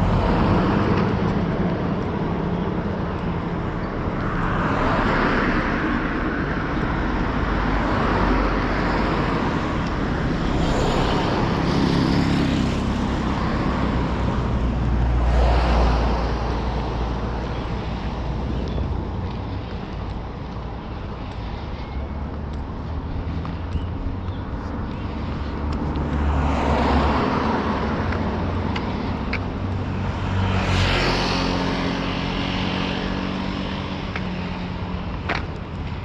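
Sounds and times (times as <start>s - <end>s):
cars passing: 0.0s - 36.0s.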